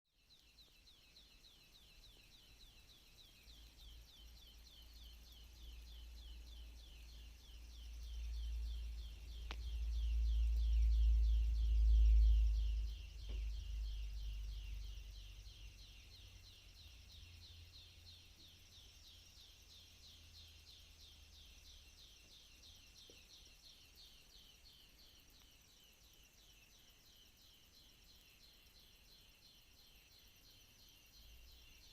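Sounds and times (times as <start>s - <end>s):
birds chirping: 0.2s - 28.9s
low rumble: 6.2s - 18.2s
faint clicks: 9.1s - 10.0s.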